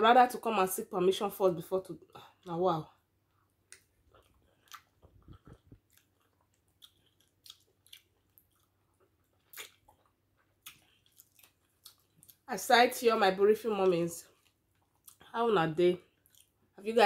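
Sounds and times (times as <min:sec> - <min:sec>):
wet chewing smacks: 0:03.7 - 0:12.4, 0:16.1 - 0:16.6.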